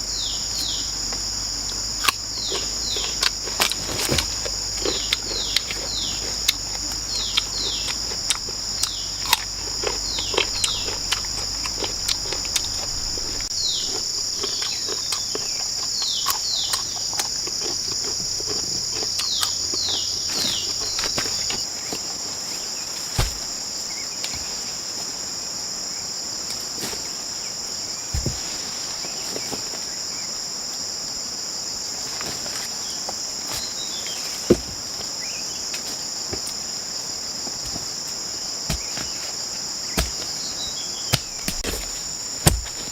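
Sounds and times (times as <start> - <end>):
falling chirps: 0.0 - 21.6
insects droning: 0.0 - 42.9.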